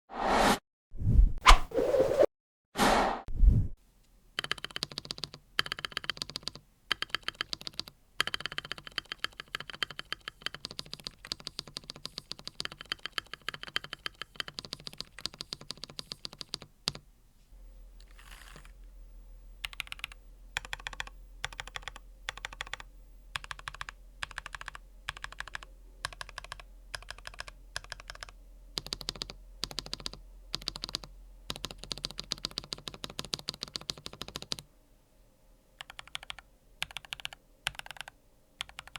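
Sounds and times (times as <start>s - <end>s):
mechanical keyboard typing: 4.4s - 17.0s, 19.6s - 34.7s, 35.8s - 38.9s
faint low hum: 9.6s - 38.9s.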